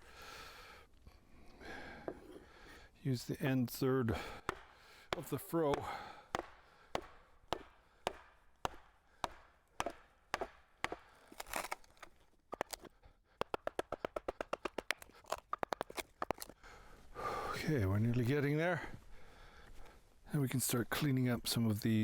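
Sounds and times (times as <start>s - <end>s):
mallet striking a froe: 4.4s - 11.7s.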